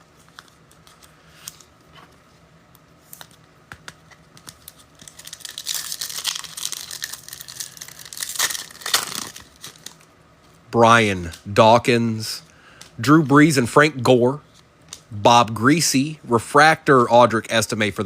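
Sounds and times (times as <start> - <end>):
foil wrapper crinkling and tearing: 4.4 - 10.1.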